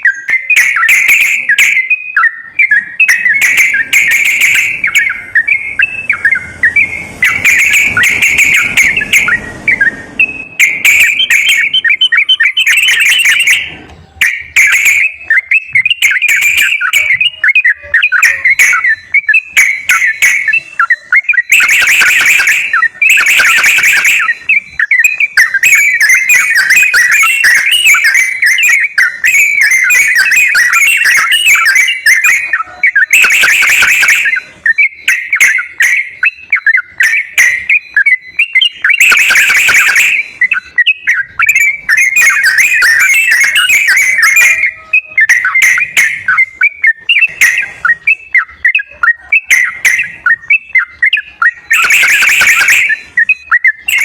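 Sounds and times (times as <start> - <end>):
bulbul song bubbly chattering: 0.0 - 54.0
harsh noisy bird bursts: 2.7 - 13.8, 14.7 - 34.8, 38.6 - 46.5.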